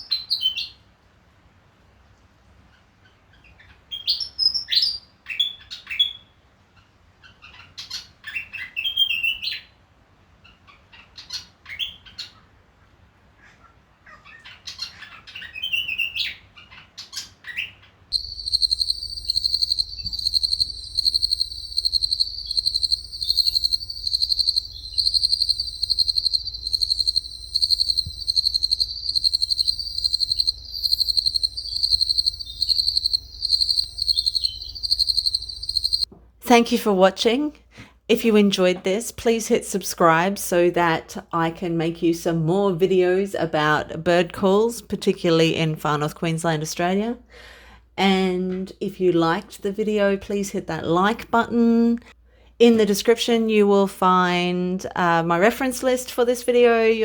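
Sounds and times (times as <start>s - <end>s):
bird chirping: 14.3s - 36.1s
high-pitched insect trill: 18.1s - 36.1s.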